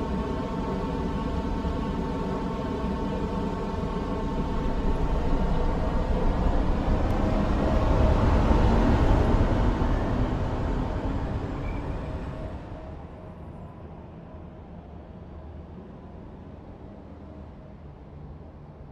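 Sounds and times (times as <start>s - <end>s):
subway train wheels rumbling: 0.0s - 18.8s.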